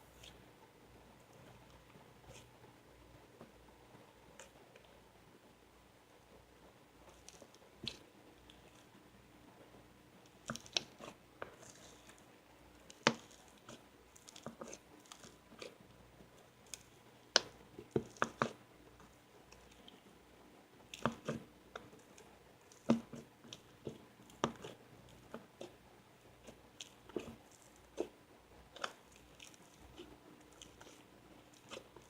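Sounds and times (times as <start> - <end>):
slime crunchy crackles and squishes: 10.4 - 12.2, 12.8 - 15.8, 20.9 - 32.0.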